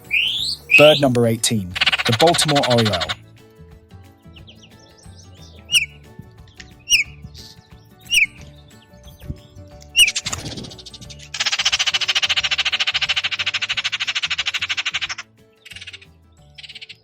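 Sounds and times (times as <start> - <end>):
bird whistled note: 0.0 - 1.1, 5.7 - 6.0, 6.9 - 7.2, 8.0 - 8.4, 9.9 - 10.8
bird rattle call: 1.8 - 3.2, 5.7 - 5.9, 8.1 - 8.4, 9.9 - 17.0.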